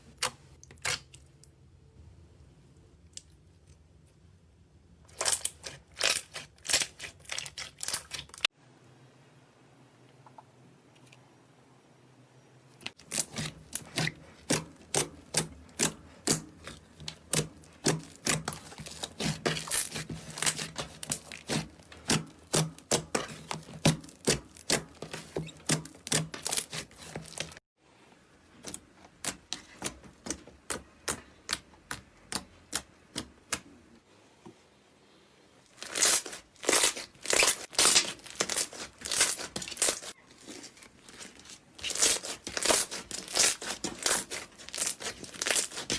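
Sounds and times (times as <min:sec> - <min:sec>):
slime crackling and popping: 0:35.7 - 0:40.2, 0:41.1 - 0:45.9.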